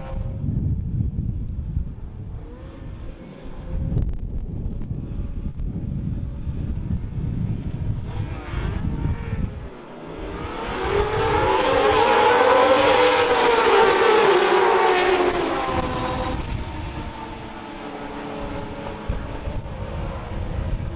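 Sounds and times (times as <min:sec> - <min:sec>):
wind buffeting microphone: 0:00.0 - 0:20.9
racing motorcycles passing: 0:05.0 - 0:20.9.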